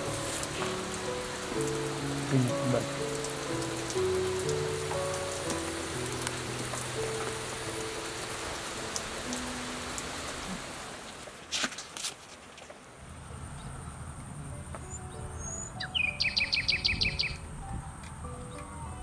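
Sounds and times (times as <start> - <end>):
soft background music: 0.0 - 10.5, 13.8 - 19.0
steady rain hiss: 0.0 - 19.0
bird call repeated notes: 14.8 - 17.4.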